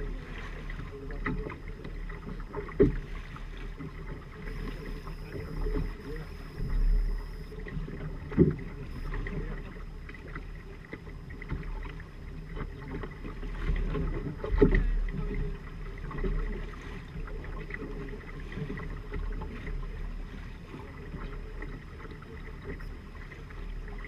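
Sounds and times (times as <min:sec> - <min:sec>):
water and wind around hull: 0:00.0 - 0:24.0
sharp knocks on boat: 0:02.6 - 0:03.1.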